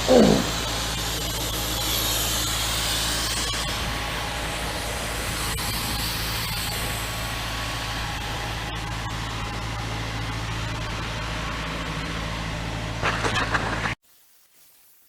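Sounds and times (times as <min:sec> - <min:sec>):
sandblasting nozzle hiss: 0:00.0 - 0:11.2
low engine drone: 0:00.0 - 0:14.0.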